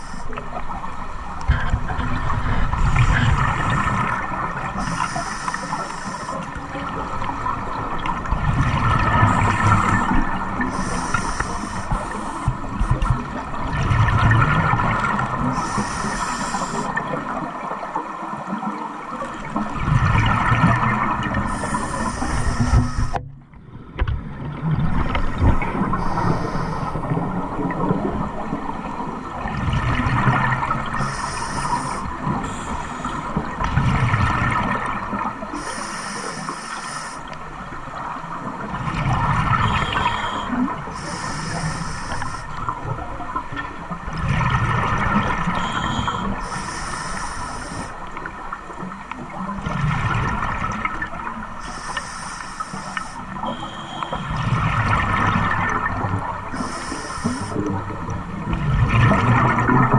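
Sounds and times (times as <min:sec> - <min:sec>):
short hiss: 0:10.7 - 0:12.5, 0:26.0 - 0:27.0, 0:31.0 - 0:32.9, 0:35.6 - 0:37.3, 0:40.0 - 0:42.5, 0:45.8 - 0:48.0, 0:51.6 - 0:54.2, 0:56.6 - 0:57.6.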